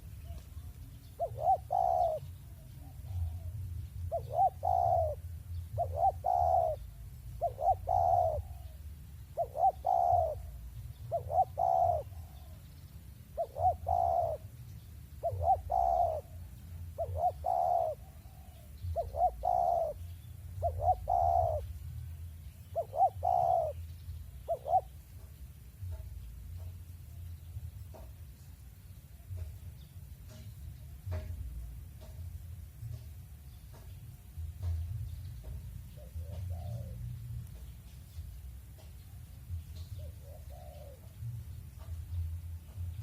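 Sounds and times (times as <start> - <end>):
dove cooing: 0.0 - 12.7, 13.3 - 22.0, 22.6 - 26.9, 33.7 - 42.9.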